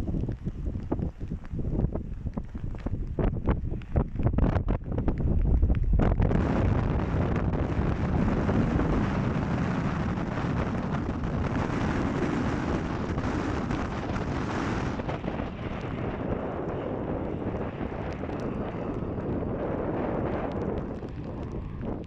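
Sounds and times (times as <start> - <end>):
wind buffeting microphone: 0.0 - 22.0
jet engine roar: 6.0 - 22.0.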